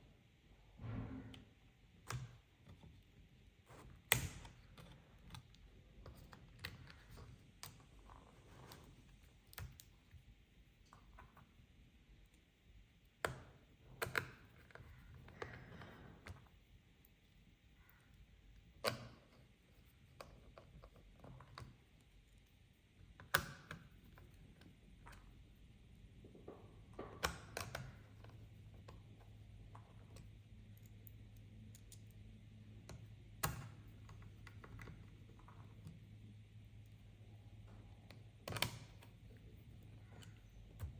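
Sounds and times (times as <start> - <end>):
faint low hum: 0.0 - 40.9
plastic and metal clicks of laptop parts: 4.0 - 7.3, 18.8 - 19.4.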